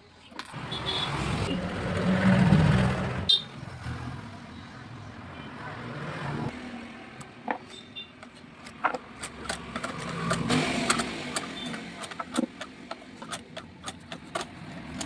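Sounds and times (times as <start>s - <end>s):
sewing machine clicks and knocks: 7.5s - 15.0s
sewing machine running: 9.3s - 15.0s.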